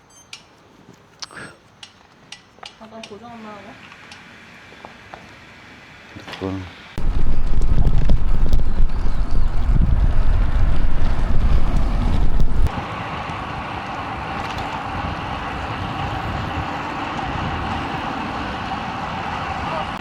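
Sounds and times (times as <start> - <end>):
hiss of riding noise: 3.8 - 20.0
wind buffeting microphone: 7.0 - 20.0.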